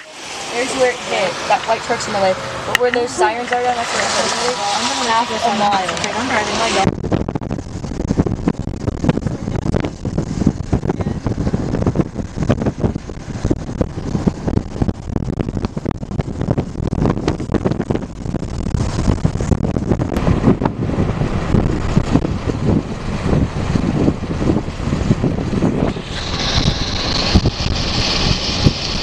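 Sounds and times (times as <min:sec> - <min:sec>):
car driving rumble: 0:00.0 - 0:29.0
wind buffeting microphone: 0:00.0 - 0:29.0.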